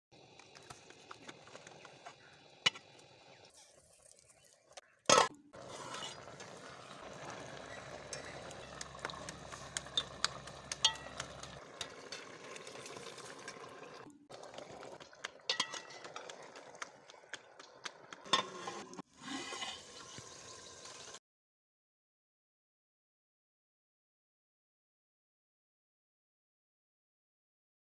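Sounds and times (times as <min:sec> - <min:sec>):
spoon stirring in a pot: 0:02.7 - 0:20.3.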